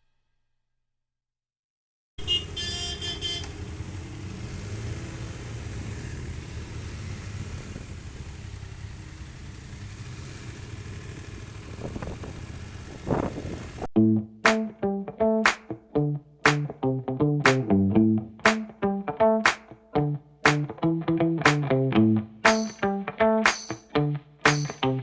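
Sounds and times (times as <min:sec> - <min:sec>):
vehicle horn toot: 0:02.2 - 0:03.6
motorcycle engine and wind rumble: 0:05.2 - 0:13.9.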